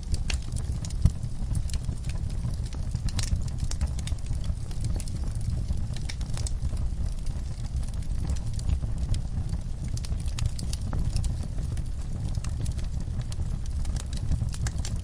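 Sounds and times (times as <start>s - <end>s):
fire snaps and pops: 0.0s - 15.0s
wood fire crackling: 0.0s - 15.0s.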